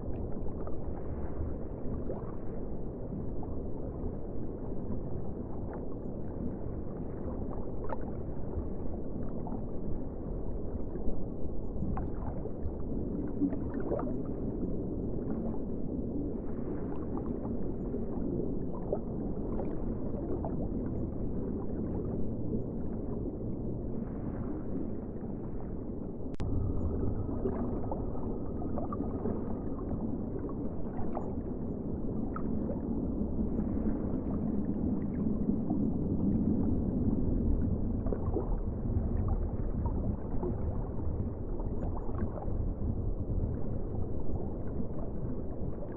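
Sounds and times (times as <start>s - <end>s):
muffled ocean water wash: 0.0s - 45.9s
faint gurgling: 26.3s - 45.9s.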